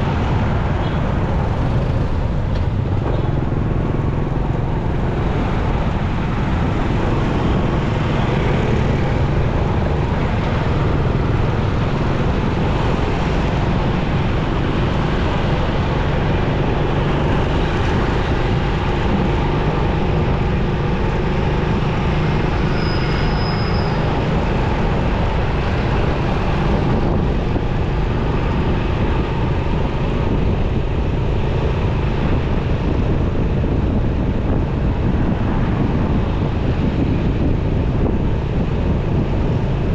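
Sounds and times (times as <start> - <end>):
motorcycle engine rumble: 0.0 - 22.5
road noise: 0.0 - 39.9.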